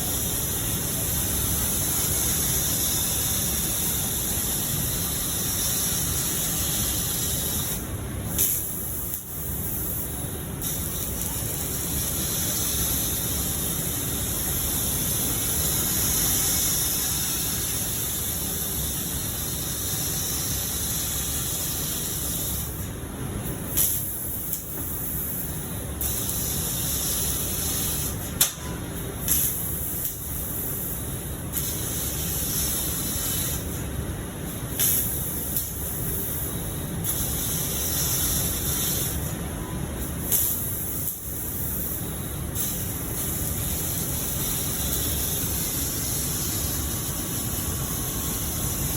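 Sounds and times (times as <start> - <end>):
cutting torch hissing: 0.0 - 22.9, 40.2 - 48.9.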